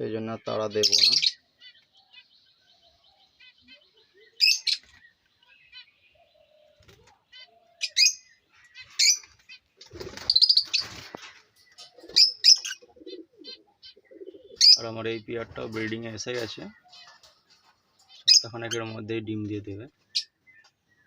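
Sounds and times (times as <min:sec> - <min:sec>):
faint small birds twittering: 0:00.0 - 0:21.0
lovebirds chirping: 0:00.0 - 0:21.0
wing flapping in cage: 0:09.2 - 0:12.2.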